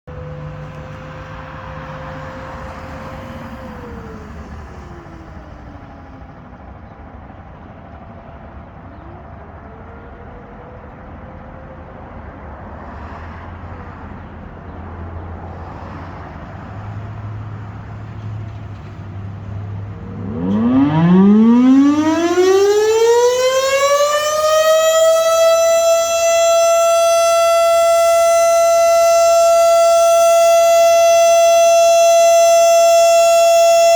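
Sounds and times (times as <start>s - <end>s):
distant siren rising and falling: 0.1s - 33.9s
siren winding up to steady wail: 19.6s - 33.9s.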